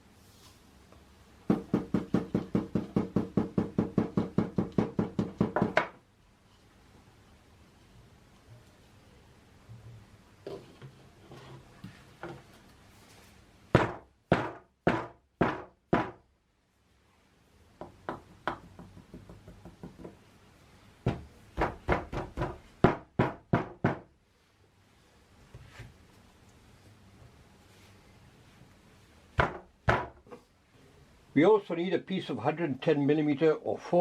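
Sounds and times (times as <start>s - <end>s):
sharp knocks on plastic pipe: 13.7s - 16.2s, 29.4s - 30.2s.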